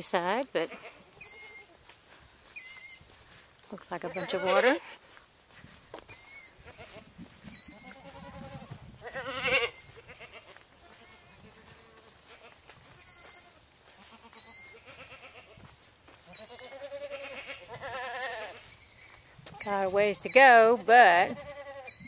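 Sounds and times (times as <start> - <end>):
farm animals bleating: 0.6 - 1.9, 4.0 - 5.0, 6.2 - 22.0
bird chirping: 2.6 - 3.2, 6.1 - 6.6, 13.0 - 13.6, 18.6 - 20.5.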